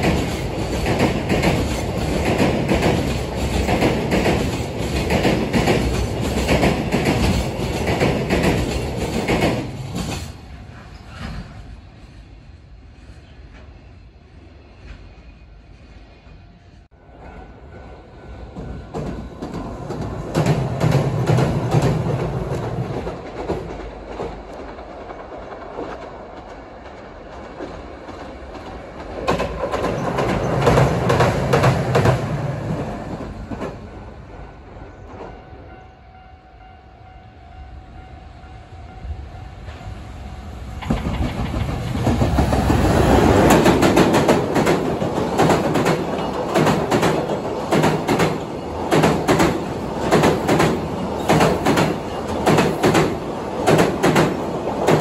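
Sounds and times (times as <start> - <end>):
train wheels clacking over rail joints: 0.0 - 11.6, 18.6 - 33.9, 40.8 - 55.0
tram passing: 0.0 - 55.0.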